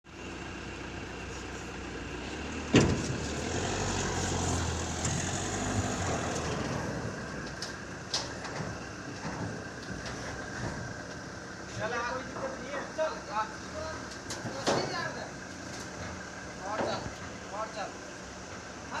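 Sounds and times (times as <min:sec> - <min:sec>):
vehicle engine rumbling: 0:00.0 - 0:19.0
loud metallic clunk: 0:02.7 - 0:03.3.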